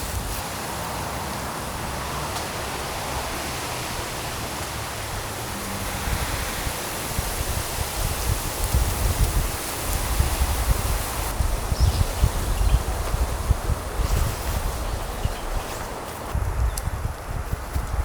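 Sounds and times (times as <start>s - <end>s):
strong wind blowing: 0.0s - 18.0s
wind buffeting microphone: 2.6s - 18.0s.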